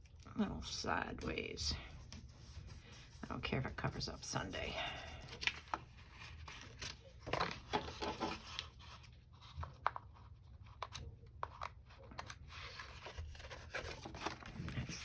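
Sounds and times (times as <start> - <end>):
paper rustling and crinkling: 4.8 - 15.0.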